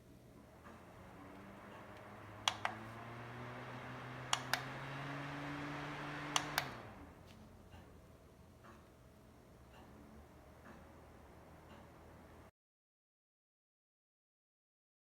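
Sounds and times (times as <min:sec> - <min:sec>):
small fan motor humming: 0:00.0 - 0:12.5
fan button clicks: 0:01.3 - 0:07.0.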